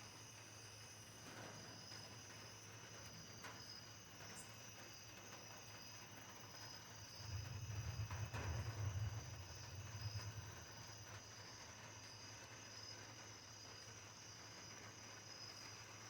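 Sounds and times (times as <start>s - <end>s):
crickets chirping: 0.0s - 16.0s
low rumble: 7.0s - 11.3s.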